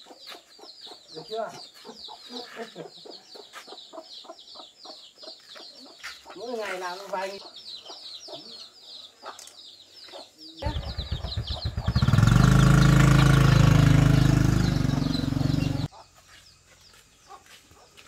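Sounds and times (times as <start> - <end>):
motorbike engine starting and revving: 10.6 - 15.9.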